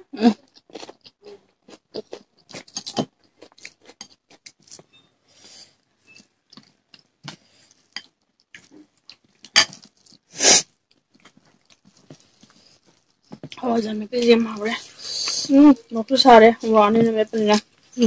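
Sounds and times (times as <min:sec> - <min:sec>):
chewing and mouth smacks: 0:00.5 - 0:04.8, 0:06.2 - 0:13.6.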